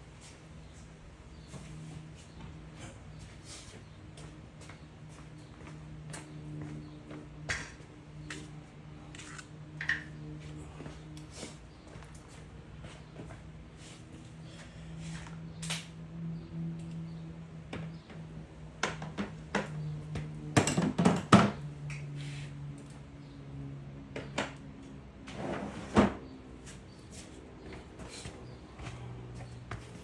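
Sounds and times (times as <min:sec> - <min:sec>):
objects knocking and clattering: 0:20.6 - 0:21.6.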